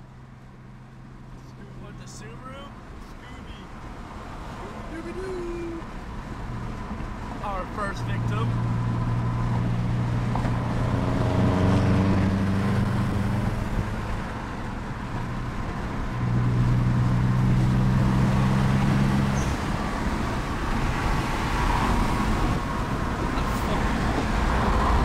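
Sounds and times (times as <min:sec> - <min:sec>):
car engine under throttle from cabin: 0:08.0 - 0:25.0.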